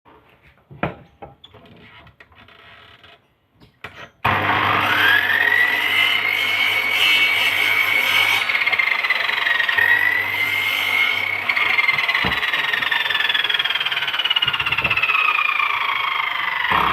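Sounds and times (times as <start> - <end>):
power tool motor whine: 4.3 - 16.9.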